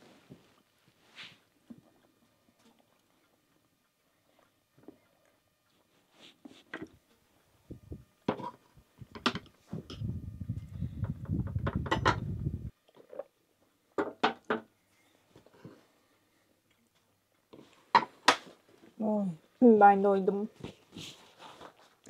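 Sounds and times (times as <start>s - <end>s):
low rumbling noise: 9.7s - 12.7s.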